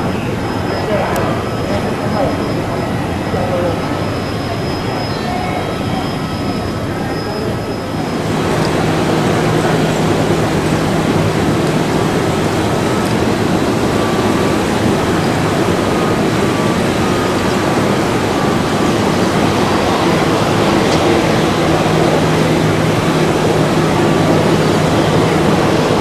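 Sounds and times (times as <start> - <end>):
faint steady whine: 0.0 - 26.0
jet engines roaring: 0.0 - 26.0.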